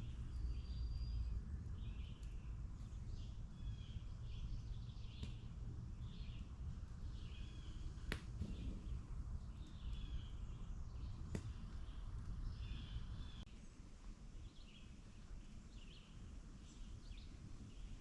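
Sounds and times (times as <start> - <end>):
bird chirping: 0.0 - 13.5
low outdoor rumble: 0.0 - 18.0.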